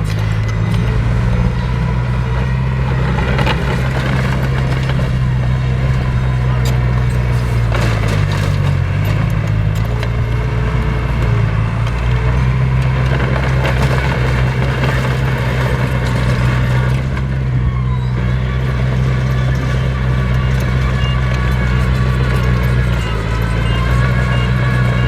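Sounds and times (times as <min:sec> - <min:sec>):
heavy diesel engine droning: 0:00.0 - 0:25.0.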